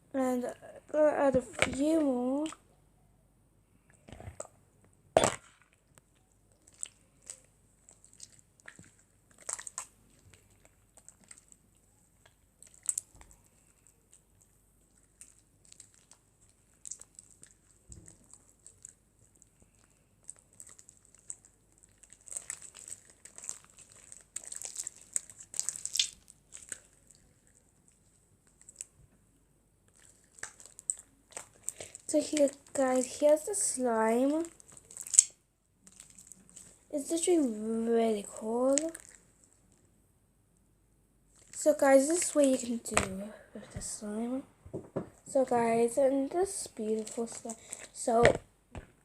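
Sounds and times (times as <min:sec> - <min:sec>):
slime wet crackles and clicks: 0:05.2 - 0:28.9, 0:29.9 - 0:37.3, 0:38.4 - 0:39.8.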